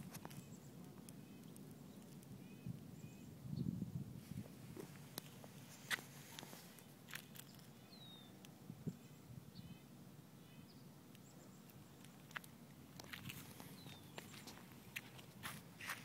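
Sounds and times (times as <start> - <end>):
small bird chirping: 0.0 - 3.8, 4.8 - 12.4, 13.0 - 15.2.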